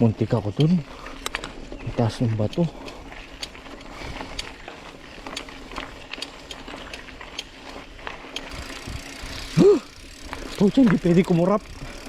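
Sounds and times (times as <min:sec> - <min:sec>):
bike rattling over rocks: 0:00.0 - 0:12.0.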